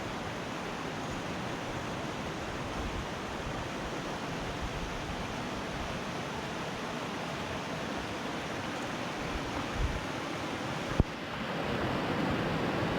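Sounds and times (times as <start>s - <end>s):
fast-flowing river water: 0.0s - 12.9s.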